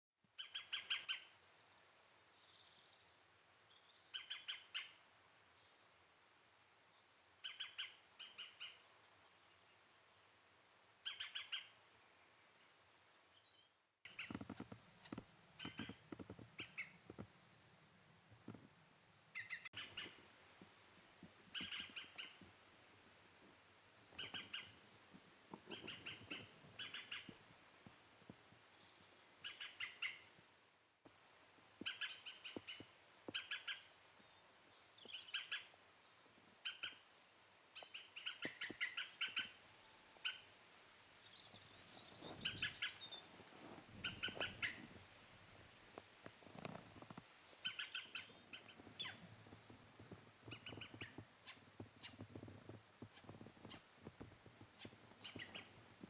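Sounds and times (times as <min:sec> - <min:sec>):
woodpecker calling: 0:00.4 - 0:01.4, 0:04.1 - 0:05.0, 0:07.4 - 0:08.9, 0:11.0 - 0:11.8, 0:14.0 - 0:17.2, 0:19.3 - 0:20.2, 0:21.5 - 0:22.5, 0:24.1 - 0:24.8, 0:25.5 - 0:27.4, 0:29.4 - 0:30.3, 0:31.8 - 0:33.9, 0:35.0 - 0:35.8, 0:36.6 - 0:37.1, 0:37.7 - 0:40.6, 0:41.3 - 0:43.4, 0:44.0 - 0:45.0, 0:47.5 - 0:49.6, 0:50.3 - 0:52.4, 0:53.0 - 0:54.0, 0:54.7 - 0:56.0.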